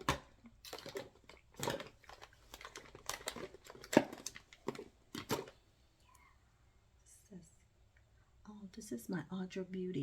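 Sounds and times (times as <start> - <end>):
bottles and jars clattering: 0.0 - 5.5.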